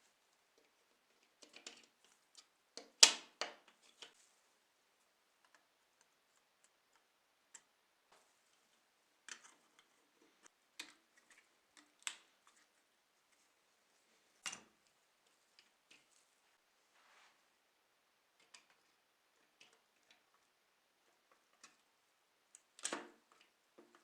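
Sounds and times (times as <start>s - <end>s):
small objects clicking and tapping: 0.6s - 4.2s, 22.5s - 24.0s.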